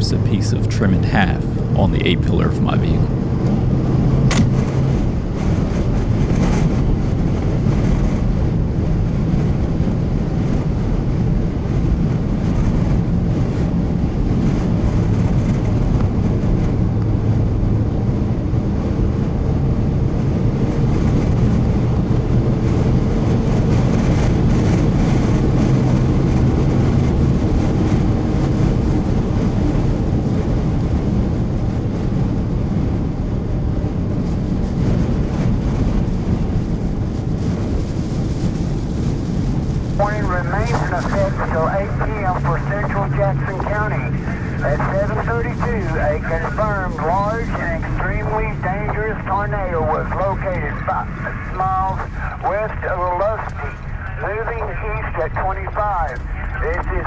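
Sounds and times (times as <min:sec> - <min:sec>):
car rumble and hum: 0:00.0 - 0:57.0
wind noise: 0:00.0 - 0:57.0.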